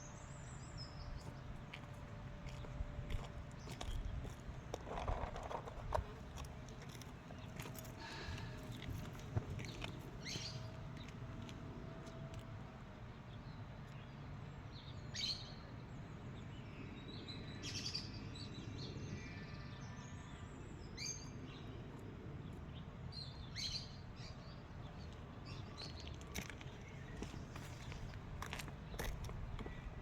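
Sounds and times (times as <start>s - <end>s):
birds chirping: 0.2s - 11.2s, 22.5s - 30.0s.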